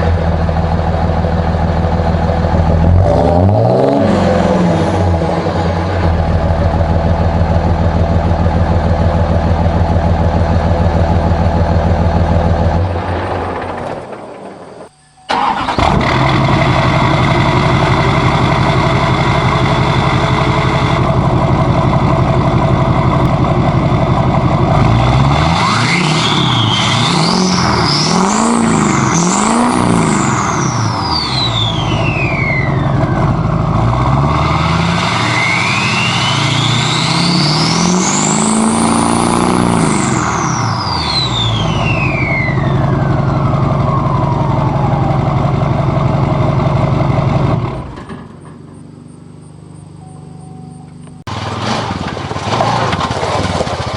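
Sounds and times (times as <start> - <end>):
diesel engine idling: 0.0 - 3.2, 4.3 - 13.7, 14.4 - 25.3, 29.4 - 34.7, 39.1 - 51.6
diesel engine revving: 0.0 - 53.9.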